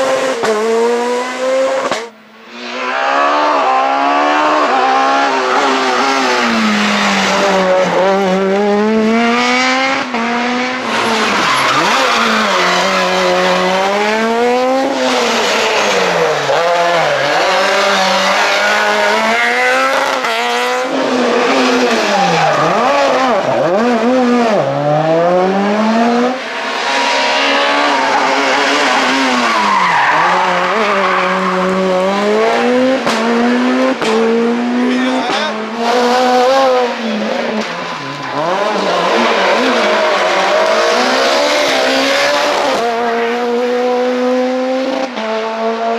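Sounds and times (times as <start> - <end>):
rally car engines revving: 0.0 - 45.9.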